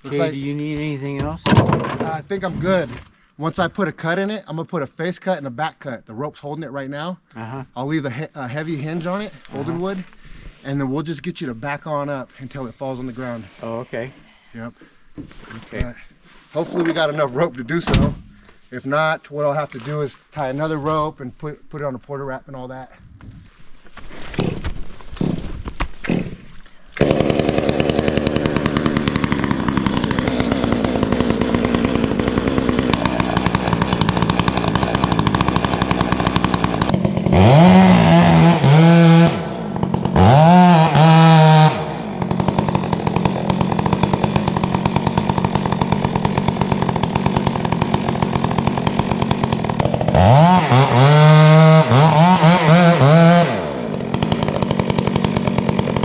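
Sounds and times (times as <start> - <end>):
chainsaw idling and revving: 25.2 - 25.4, 26.0 - 56.0.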